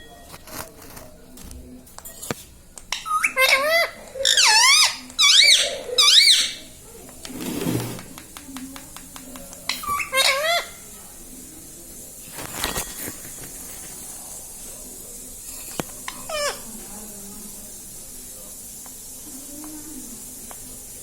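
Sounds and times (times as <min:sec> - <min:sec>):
parrot squawking: 0:02.9 - 0:06.6, 0:09.8 - 0:10.8, 0:16.2 - 0:16.6.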